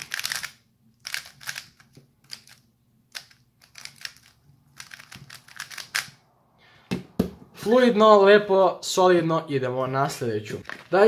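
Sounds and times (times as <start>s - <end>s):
puzzle cube plastic clicks: 0.0s - 6.2s.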